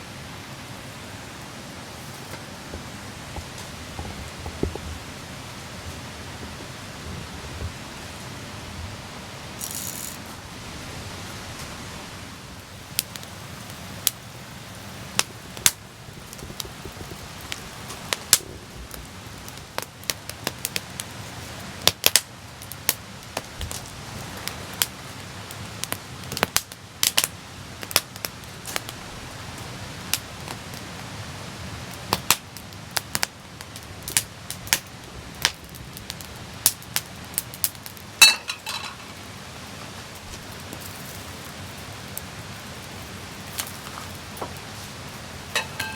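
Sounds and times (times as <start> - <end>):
campfire crackling and popping: 0.9 - 45.9
ringing clink: 38.2 - 39.0, 45.6 - 45.9.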